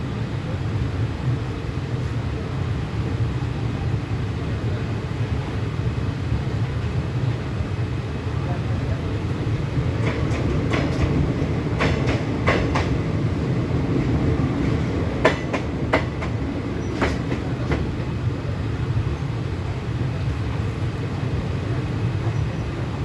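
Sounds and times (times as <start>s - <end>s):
sharp clicks and knocks: 10.0s - 13.0s.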